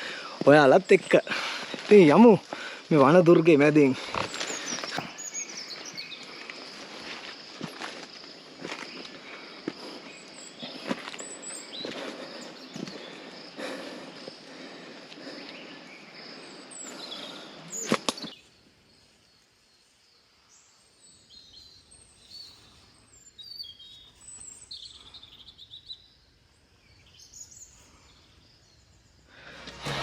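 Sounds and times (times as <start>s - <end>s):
birds chirping and whistling: 3.4s - 6.7s, 8.9s - 14.0s, 15.2s - 18.5s.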